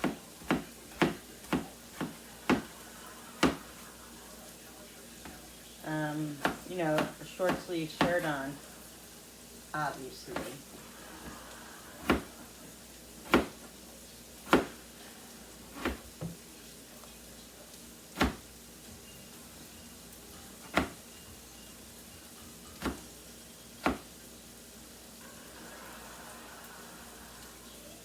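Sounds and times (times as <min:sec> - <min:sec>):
knife striking cutting board: 0:00.0 - 0:02.7, 0:03.4 - 0:03.7, 0:06.4 - 0:08.3, 0:12.0 - 0:12.3, 0:13.3 - 0:13.6, 0:14.5 - 0:14.8, 0:15.8 - 0:16.4, 0:18.2 - 0:18.4, 0:20.7 - 0:21.0, 0:22.8 - 0:23.1, 0:23.8 - 0:24.1.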